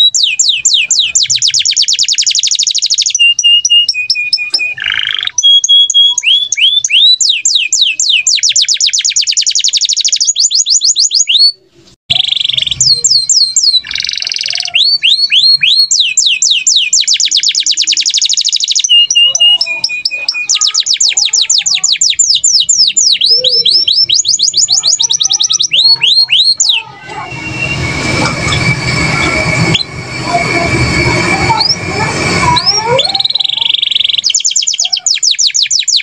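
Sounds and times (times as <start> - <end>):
bird chirps: 0.0 - 36.0
bird trilling song: 0.0 - 36.0
noisy background: 11.6 - 36.0.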